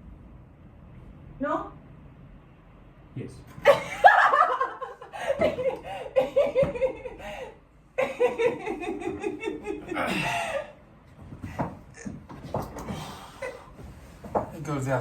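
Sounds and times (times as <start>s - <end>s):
person laughing hard: 3.7s - 10.7s.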